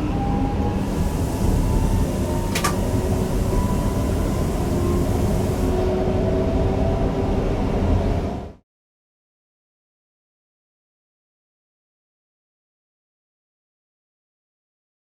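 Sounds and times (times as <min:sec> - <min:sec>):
traction motor whine: 0:00.0 - 0:05.9
train wheels rumbling on rail: 0:00.1 - 0:08.5.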